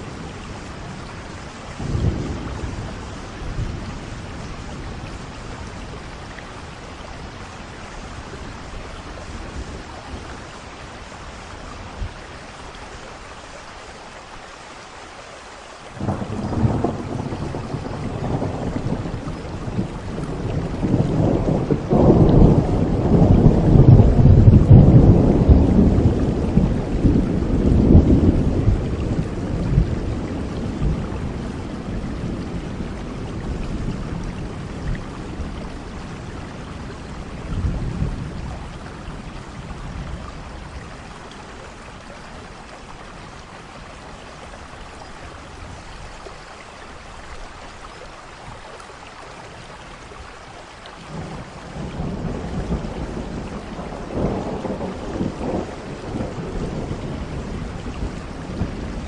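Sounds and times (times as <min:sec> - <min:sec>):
steady rain: 0:00.0 - 0:59.0
rolling thunder: 0:16.0 - 0:40.8, 0:51.1 - 0:59.0.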